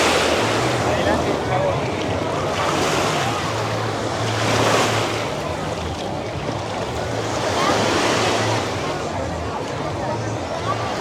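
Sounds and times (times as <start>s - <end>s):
ocean waves breaking: 0.0s - 5.4s.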